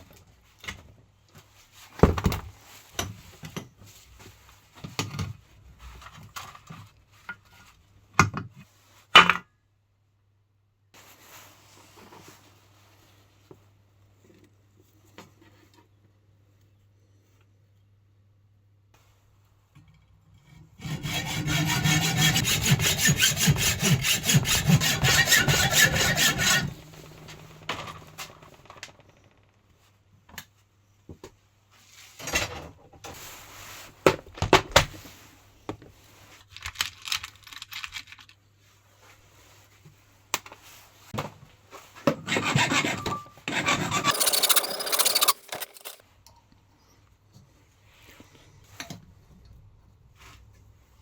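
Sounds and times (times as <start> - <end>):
hand tool rasping on metal: 20.8 - 27.7, 42.3 - 46.0
tools knocking and scraping: 20.9 - 29.1, 42.1 - 46.0.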